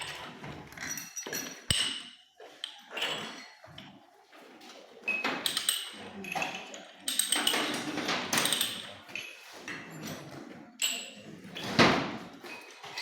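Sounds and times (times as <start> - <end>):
metal tools clinking and scraping: 0.0 - 3.5, 5.1 - 11.8.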